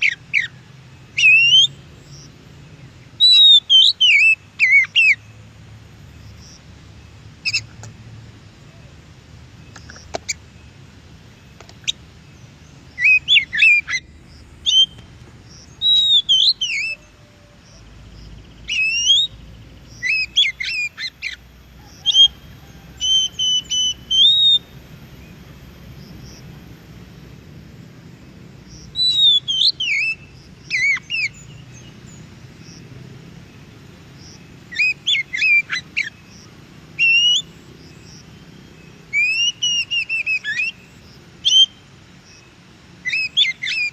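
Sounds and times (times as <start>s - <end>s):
faint low background rumble: 0.0s - 39.2s
bird singing whistled phrases: 1.2s - 1.8s, 3.2s - 5.2s, 13.0s - 15.0s, 15.8s - 17.2s, 18.6s - 19.4s, 20.0s - 21.4s, 23.0s - 24.7s, 28.9s - 31.6s, 34.7s - 36.2s, 37.0s - 37.5s, 39.1s - 41.8s, 43.0s - 43.9s.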